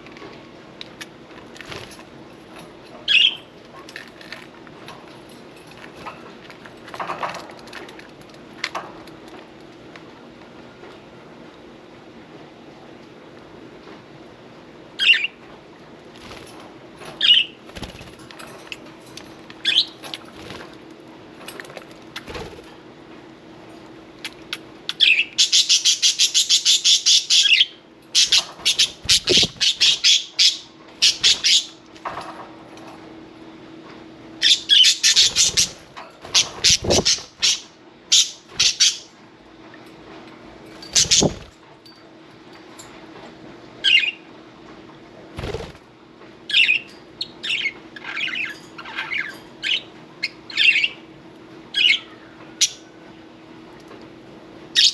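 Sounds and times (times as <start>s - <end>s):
budgie wings flapping: 28.8s - 29.8s, 35.3s - 37.3s, 40.9s - 41.5s, 45.4s - 45.8s.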